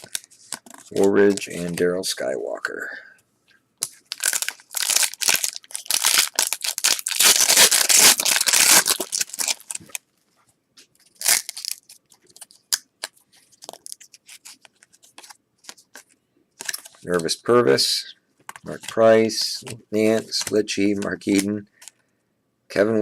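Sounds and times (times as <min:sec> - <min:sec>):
wrapper tearing and crinkling: 0:03.8 - 0:10.0, 0:11.1 - 0:16.0, 0:16.6 - 0:17.1
cards clicking and tapping: 0:20.2 - 0:22.0.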